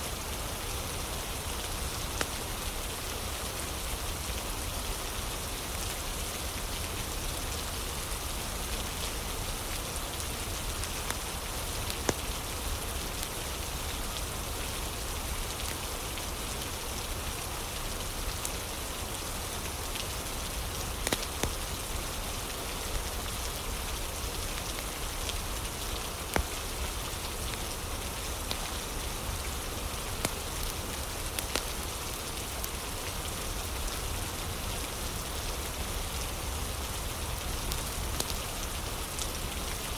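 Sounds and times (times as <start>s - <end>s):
steady rain: 0.0s - 39.9s
wood fire crackling: 7.7s - 13.8s, 19.3s - 39.9s.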